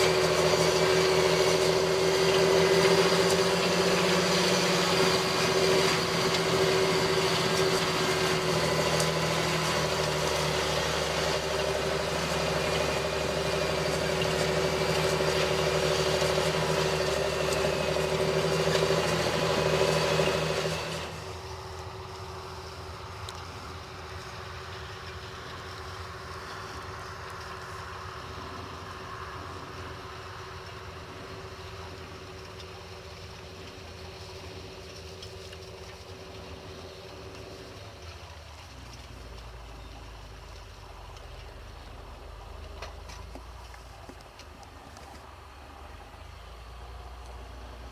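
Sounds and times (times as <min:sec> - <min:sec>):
tractor diesel engine under load: 0:00.0 - 0:47.9.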